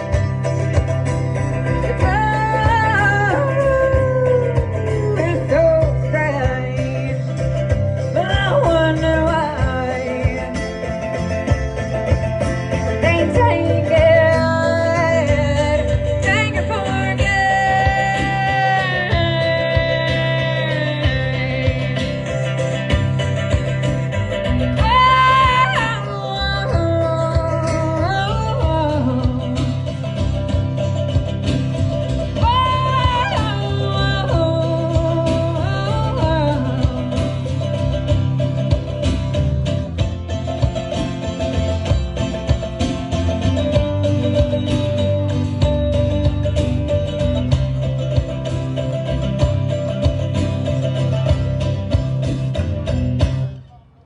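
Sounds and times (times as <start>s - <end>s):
bass and beat: 0.0s - 53.7s
country band playing: 0.0s - 54.0s
sliding guitar melody: 0.0s - 54.0s
person singing: 1.8s - 10.9s, 13.0s - 23.1s, 32.2s - 37.8s.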